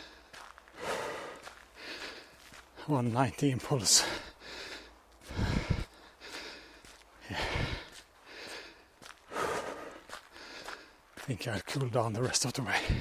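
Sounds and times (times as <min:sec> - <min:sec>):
man breathing hard: 0:00.0 - 0:02.9, 0:03.9 - 0:11.1, 0:12.8 - 0:13.0.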